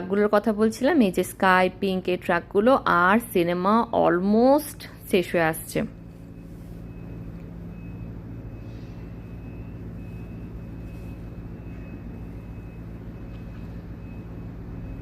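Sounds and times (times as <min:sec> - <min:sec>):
faint high whine: 0:04.8 - 0:15.0
engine humming: 0:05.6 - 0:15.0.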